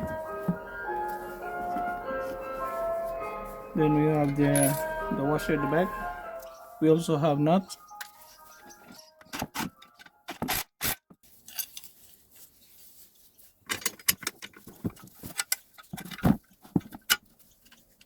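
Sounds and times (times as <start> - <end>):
metal hardware clinking and scraping: 4.2 - 5.3, 8.0 - 12.0, 13.6 - 16.2.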